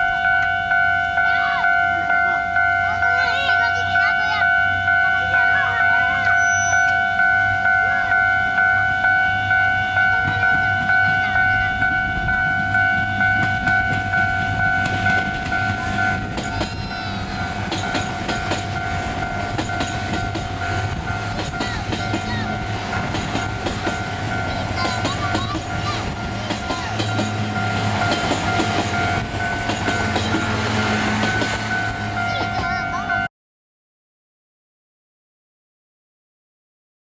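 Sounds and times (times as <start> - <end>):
level crossing warning bell: 0.0 - 33.3
train wheels clicking over rail joints: 13.0 - 33.0.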